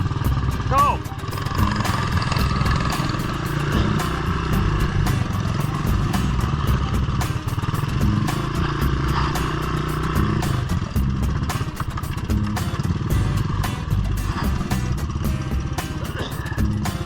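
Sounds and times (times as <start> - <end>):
off-road motorbike engine revving: 1.6 - 11.6.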